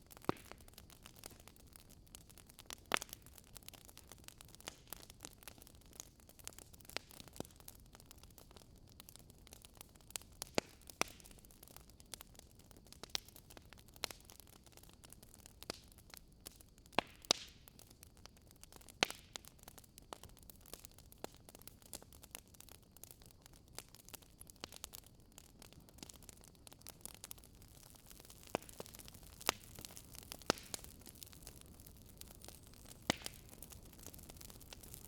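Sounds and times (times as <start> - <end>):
faint steady hiss: 0.0 - 35.0
firewood crackling and popping: 0.0 - 35.0.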